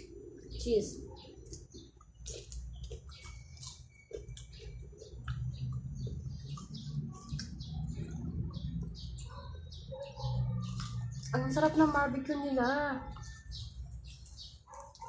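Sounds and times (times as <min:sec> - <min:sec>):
person chewing crunchy chips: 0:01.5 - 0:08.3.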